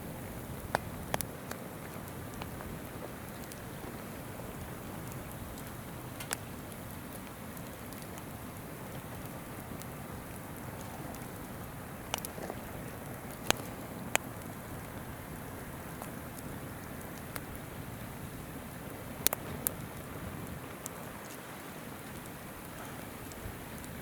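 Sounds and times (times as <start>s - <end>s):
campfire crackling: 0.0s - 24.0s
river flowing: 0.0s - 24.0s.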